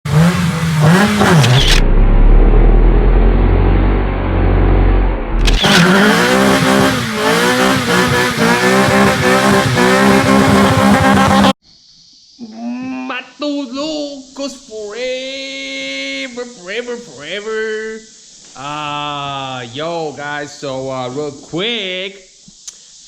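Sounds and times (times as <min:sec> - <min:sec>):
motorcycle engine revving: 0:00.0 - 0:11.6.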